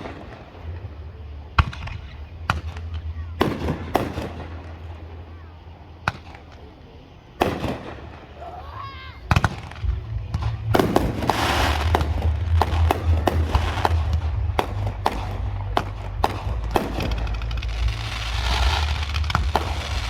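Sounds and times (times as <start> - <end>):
fireworks banging: 0.0 - 20.0
fireworks crackling: 0.0 - 20.0
low rumble: 9.4 - 20.0.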